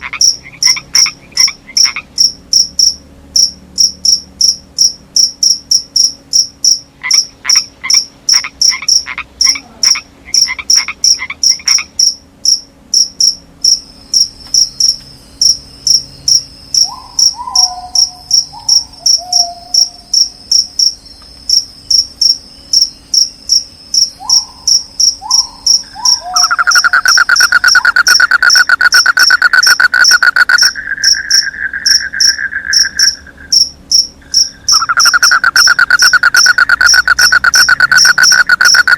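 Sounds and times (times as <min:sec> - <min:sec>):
crickets chirping: 0:00.0 - 0:38.9
frogs croaking: 0:00.0 - 0:38.9
loud fast frog trill: 0:00.0 - 0:38.9.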